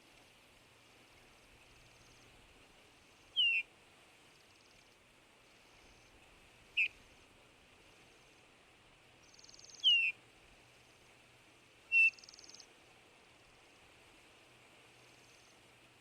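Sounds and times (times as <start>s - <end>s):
faint steady hiss: 0.0s - 16.0s
bird piping whistles: 3.4s - 3.6s, 9.4s - 10.2s, 11.9s - 12.6s.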